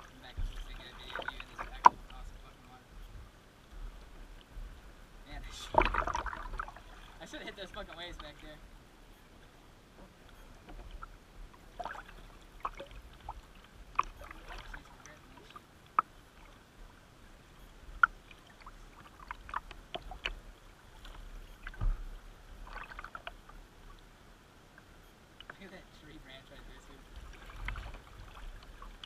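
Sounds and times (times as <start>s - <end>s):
paddle strokes splashing: 0.0s - 2.8s, 5.4s - 8.7s, 9.3s - 24.1s, 25.3s - 29.0s
water lapping at hull: 0.0s - 29.0s
dull thump: 21.7s - 22.1s.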